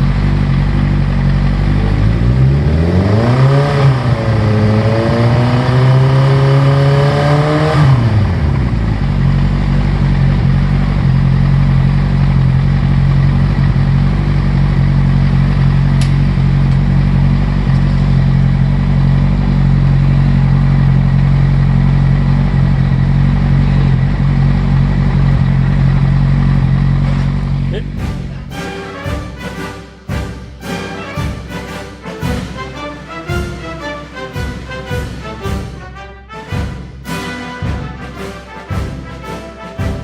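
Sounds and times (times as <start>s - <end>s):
motorcycle engine revving and idling: 0.0s - 28.0s.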